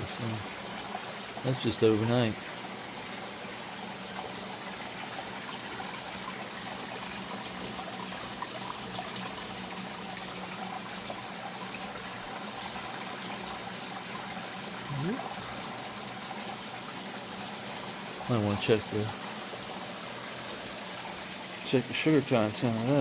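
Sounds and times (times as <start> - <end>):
running water splashing: 0.0 - 23.0.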